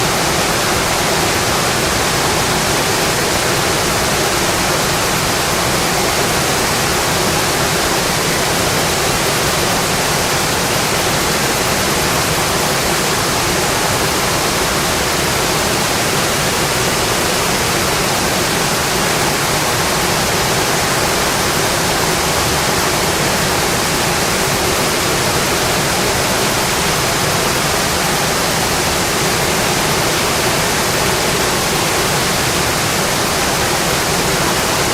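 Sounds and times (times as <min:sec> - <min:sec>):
heavy rain on a window: 0:00.0 - 0:34.9.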